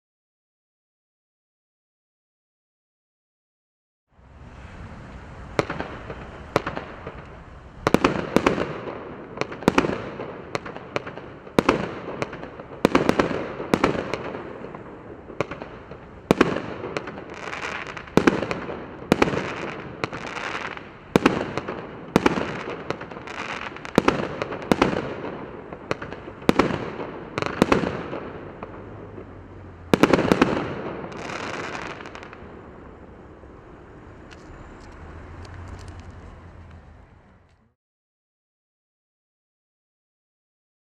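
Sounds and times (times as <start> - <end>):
firework aerial bursts: 4.2 - 36.6.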